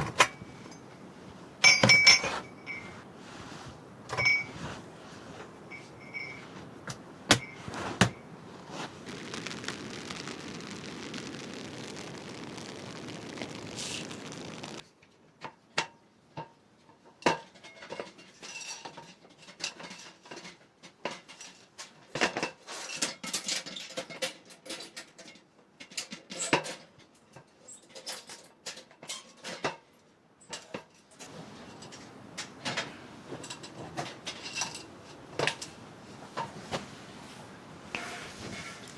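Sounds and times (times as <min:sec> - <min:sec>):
steady hiss: 0:00.0 - 0:14.8, 0:31.3 - 0:38.9.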